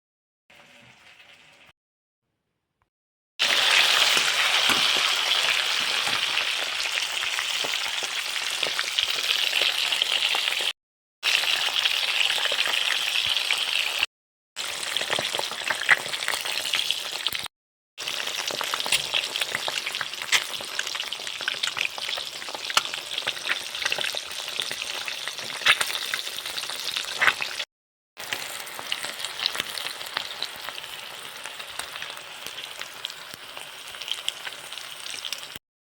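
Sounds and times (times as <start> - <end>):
food sizzling in oil: 3.4 - 35.6
sharp oil pops: 20.3 - 20.6.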